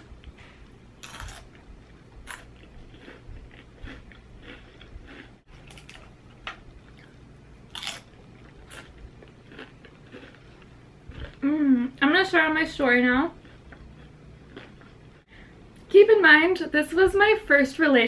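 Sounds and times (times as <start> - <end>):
crunching chips: 1.0 - 1.6, 2.2 - 6.2, 6.8 - 11.4.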